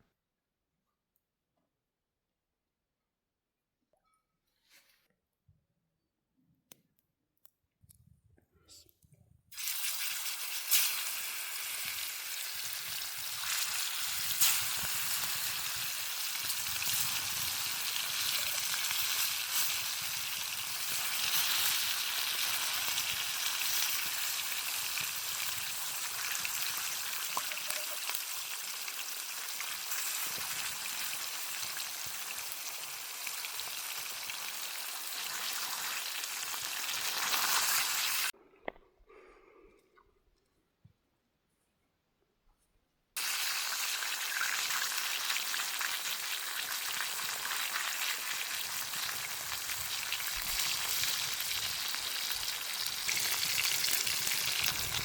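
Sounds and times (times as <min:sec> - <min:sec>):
chicken sizzling on a grill: 0:09.6 - 0:38.3, 0:43.2 - 0:55.0.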